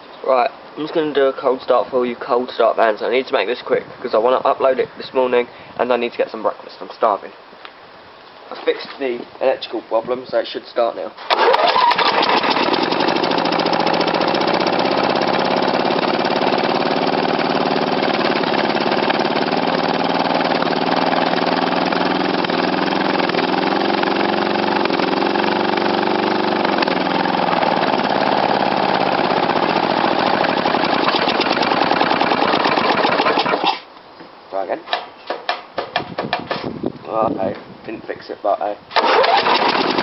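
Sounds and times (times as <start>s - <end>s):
engine speed wavering: 11.3s - 33.7s.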